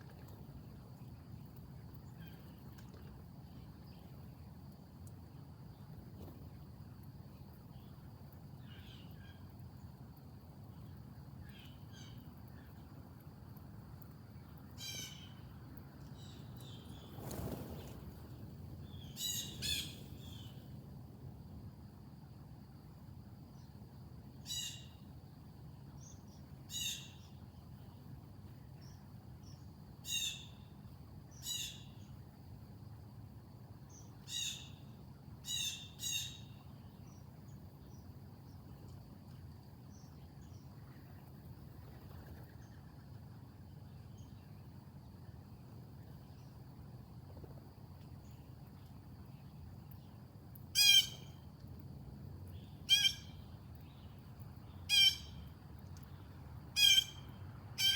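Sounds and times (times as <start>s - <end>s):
harsh raspy bird calls: 50.8s - 51.3s, 52.9s - 53.3s, 54.9s - 55.3s, 56.8s - 57.2s.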